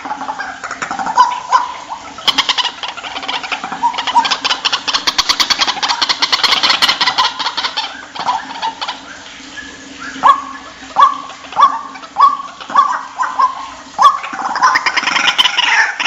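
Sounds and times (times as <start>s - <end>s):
bird calling harsh notes: 0.0s - 16.0s
bird croaking: 0.0s - 16.0s.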